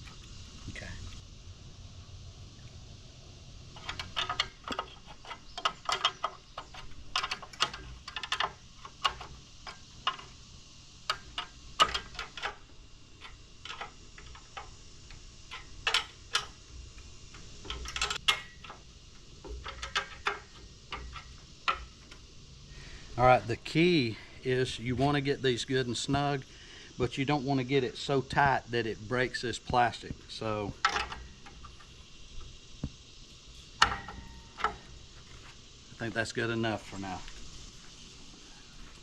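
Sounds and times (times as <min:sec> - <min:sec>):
wrench clicking on bolts: 0:03.8 - 0:10.4, 0:11.0 - 0:22.3, 0:30.4 - 0:31.9.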